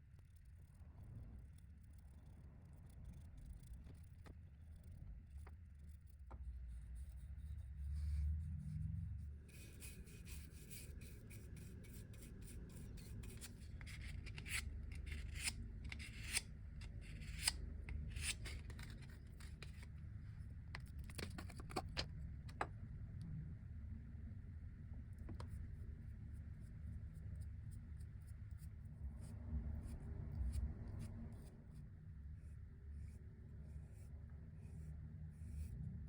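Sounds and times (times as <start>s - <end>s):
low steady hum: 0.0s - 36.0s
rubbing and scraping with clicks: 0.2s - 22.8s.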